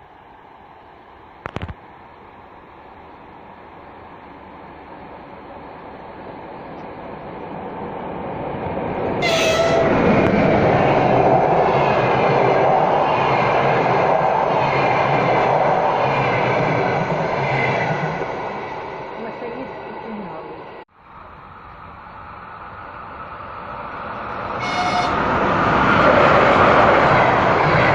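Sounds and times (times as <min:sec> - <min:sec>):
passenger train rumble: 0:00.0 - 0:27.9
train horn: 0:09.2 - 0:10.0, 0:24.6 - 0:25.2.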